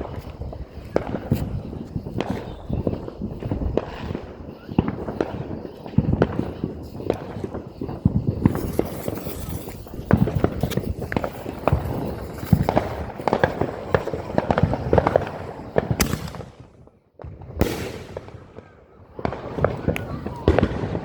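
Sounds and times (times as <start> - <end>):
fireworks popping and banging: 0.0 - 21.0.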